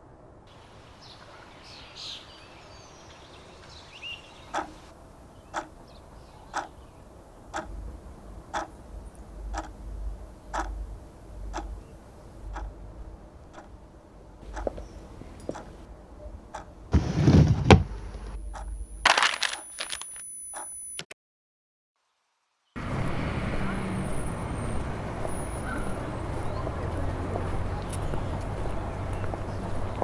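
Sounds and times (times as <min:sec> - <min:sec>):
birds chirping: 0:01.0 - 0:19.0, 0:23.5 - 0:30.0
clock ticking: 0:04.5 - 0:16.9
low rumble: 0:04.9 - 0:17.0.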